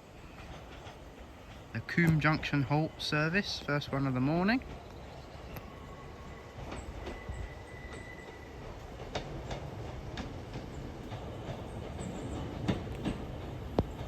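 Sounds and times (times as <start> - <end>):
train rumbling: 0.0 - 14.0
faint high wheel squeal: 5.7 - 8.9
wheels clicking over rail joints: 6.6 - 14.0.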